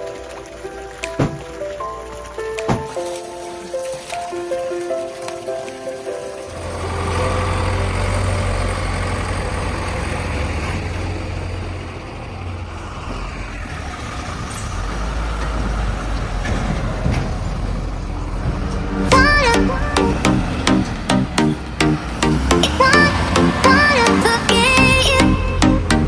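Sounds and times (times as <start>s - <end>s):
diesel engine rumbling: 6.5s - 26.0s.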